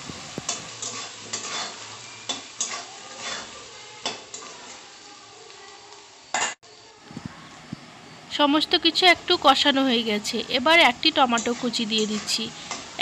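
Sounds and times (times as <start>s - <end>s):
potatoes sizzling in oil: 0.0s - 13.0s
metal spatula scraping pan: 0.2s - 4.9s.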